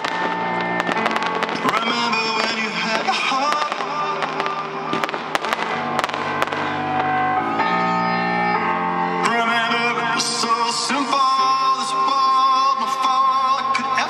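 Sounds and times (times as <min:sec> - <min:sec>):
fireworks bangs and crackles: 0:00.0 - 0:07.4
loud music with held chords: 0:00.0 - 0:14.0.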